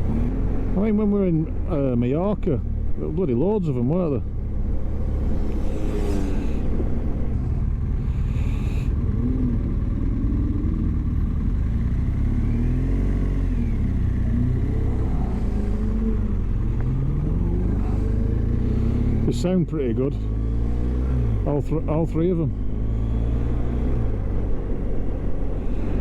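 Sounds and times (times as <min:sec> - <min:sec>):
motorcycle engine rumble: 0:00.0 - 0:20.4
car engines accelerating: 0:00.0 - 0:26.0.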